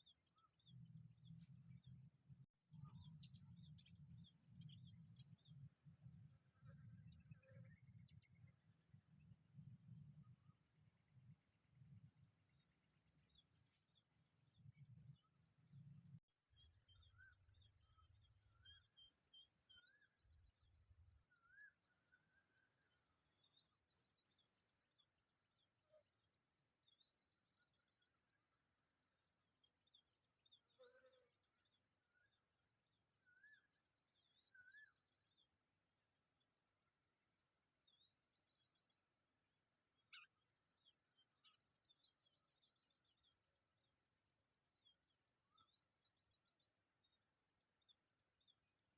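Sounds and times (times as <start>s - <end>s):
bird chirps: 2.7s - 8.6s, 16.5s - 25.1s, 33.2s - 35.6s, 40.0s - 44.1s.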